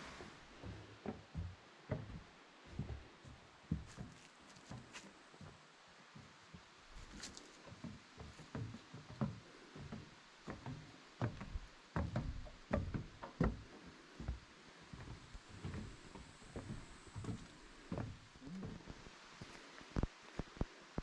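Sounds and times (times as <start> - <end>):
irregular knocks and thumps: 0.6 - 3.1, 7.7 - 19.1.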